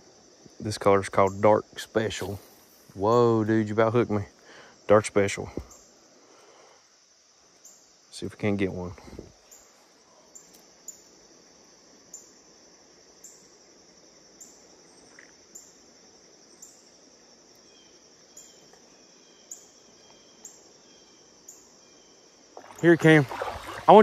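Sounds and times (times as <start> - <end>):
high insect drone: 0.0 - 24.0
faint bird chirps: 16.5 - 17.0, 17.6 - 24.0.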